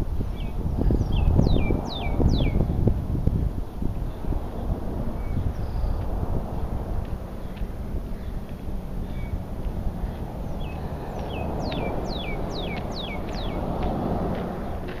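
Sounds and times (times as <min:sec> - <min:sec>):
songbird whistling: 0:00.4 - 0:02.6, 0:10.5 - 0:13.6.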